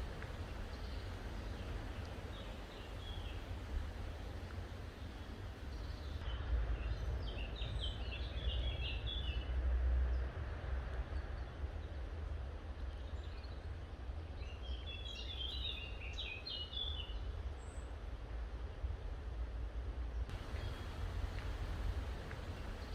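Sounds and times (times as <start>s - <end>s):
steady low rumble: 0.0s - 6.3s, 20.3s - 22.9s
songbird chirping: 0.0s - 9.5s, 20.3s - 22.9s.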